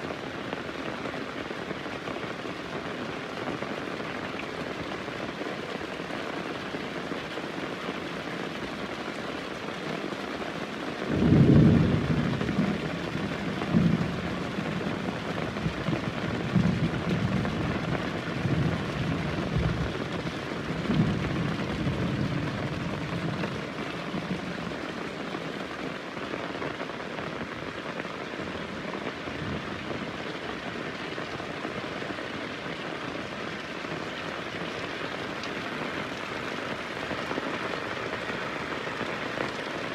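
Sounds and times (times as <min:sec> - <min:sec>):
heavy rain: 0:00.0 - 0:39.9
thunder rumbling: 0:11.1 - 0:25.2.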